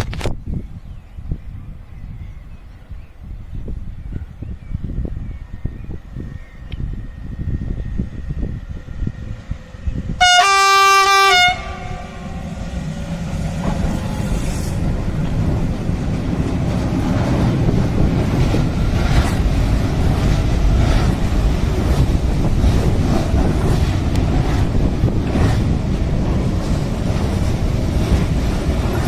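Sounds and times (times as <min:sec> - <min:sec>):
train wheels rumbling on rails: 0:01.6 - 0:29.0
train horn blast: 0:10.2 - 0:12.7
wheels clacking over rail joints: 0:12.7 - 0:29.0.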